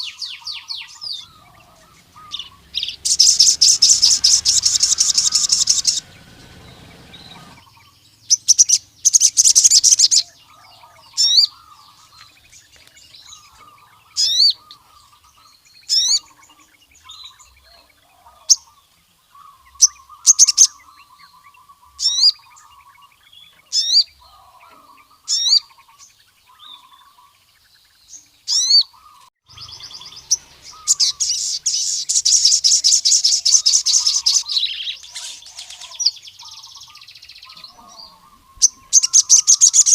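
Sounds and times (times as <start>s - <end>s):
sharp high bird chirps: 0.0s - 10.3s, 29.5s - 39.9s
rapid high bird trills: 0.0s - 12.4s, 28.5s - 39.9s.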